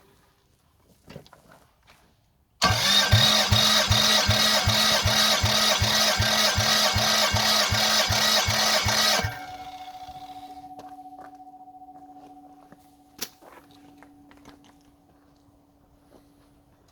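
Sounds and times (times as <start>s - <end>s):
car engine running: 2.6s - 10.9s.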